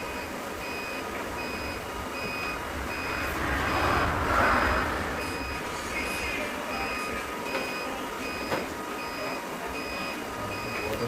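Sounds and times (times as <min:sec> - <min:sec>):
reversing alarm beeps: 0:00.0 - 0:03.1, 0:06.8 - 0:11.0
low engine rumble: 0:01.2 - 0:08.1
rush of noise: 0:01.6 - 0:07.5.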